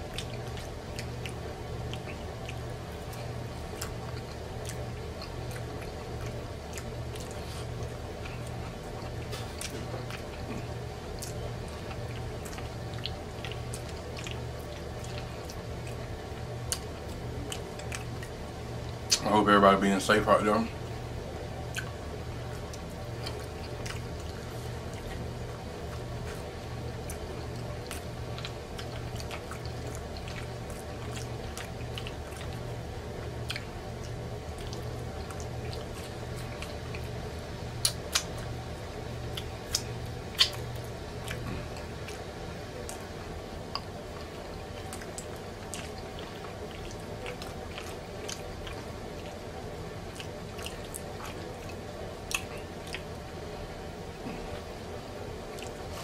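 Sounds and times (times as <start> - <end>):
person chewing wetly: 0.0 - 19.2, 20.7 - 56.0
low pulsing hum: 0.0 - 56.0
sharp mouth clicks: 39.7 - 40.6.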